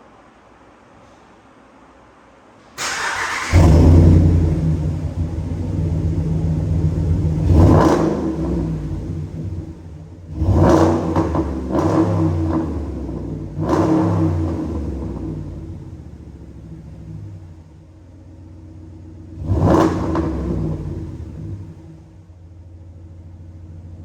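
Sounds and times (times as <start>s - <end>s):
pickup engine revving: 2.8s - 17.8s, 18.7s - 22.1s.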